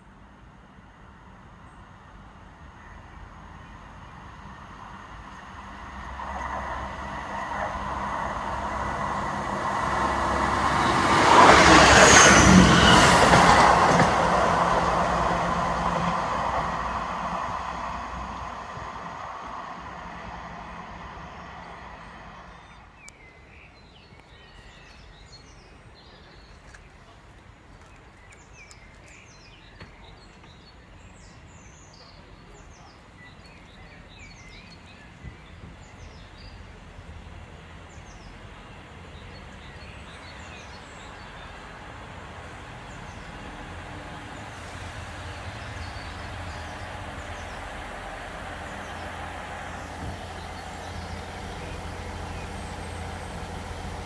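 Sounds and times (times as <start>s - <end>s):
diesel train passing: 0.0s - 54.0s
birds chirping: 27.8s - 54.0s.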